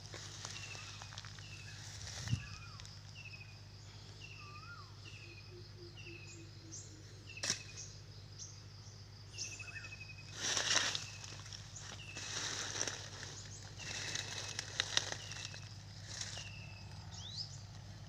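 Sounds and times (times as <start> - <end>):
steady low hum: 0.0 - 18.0
scattered bird notes: 9.4 - 17.6.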